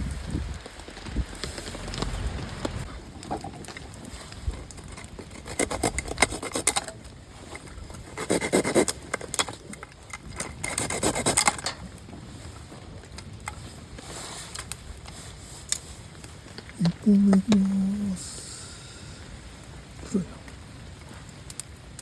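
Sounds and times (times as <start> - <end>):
wood being scraped: 4.0 - 9.4, 10.4 - 11.6.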